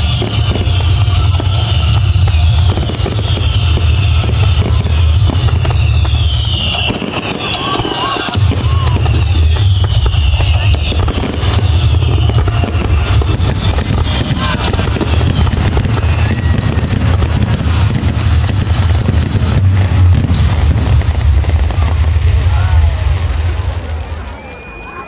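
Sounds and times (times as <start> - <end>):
music playing: 0.0 - 5.6
fireworks crackling and banging: 0.0 - 25.0
low rumble: 17.4 - 24.4.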